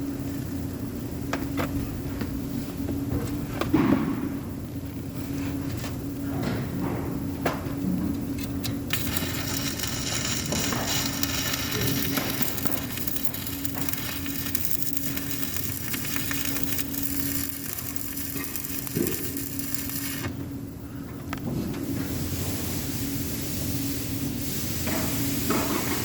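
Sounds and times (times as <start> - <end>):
welding arc crackling and sizzling: 8.0 - 20.7, 21.3 - 26.0
welding machine hum: 8.0 - 26.0.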